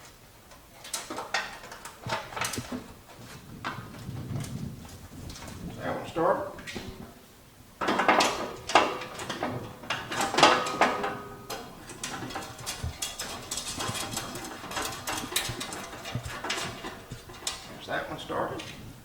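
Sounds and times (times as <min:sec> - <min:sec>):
metal hardware clicking and scraping: 0:00.5 - 0:02.8, 0:07.8 - 0:18.8.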